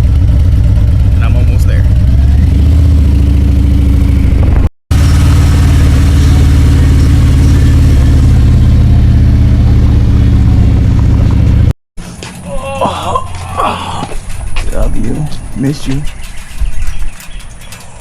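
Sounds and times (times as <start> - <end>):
motorcycle engine running: 0.0 - 12.5.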